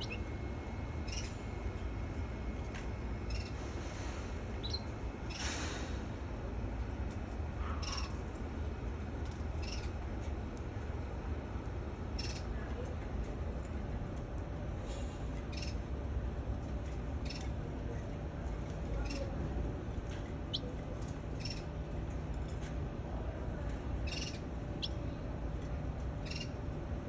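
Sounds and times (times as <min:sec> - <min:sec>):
canary chirping: 0:00.0 - 0:00.3, 0:01.0 - 0:01.4, 0:04.6 - 0:05.4, 0:20.5 - 0:20.8, 0:21.4 - 0:21.7, 0:24.0 - 0:25.2, 0:26.2 - 0:26.6.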